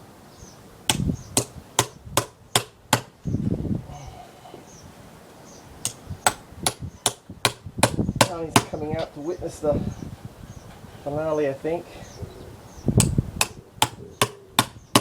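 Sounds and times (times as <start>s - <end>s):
hammer striking chisel into wood: 0.9s - 3.1s, 5.8s - 8.8s, 13.0s - 15.0s.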